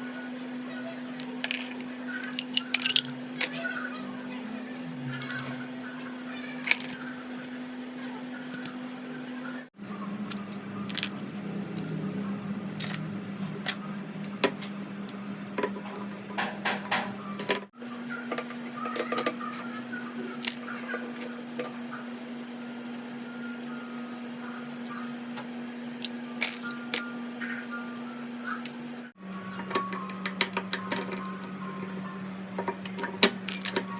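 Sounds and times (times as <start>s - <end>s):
background hum: 0.0s - 33.9s
screwdriver and metal parts clicking: 1.2s - 3.6s, 6.6s - 7.1s, 25.9s - 27.1s, 32.6s - 33.9s.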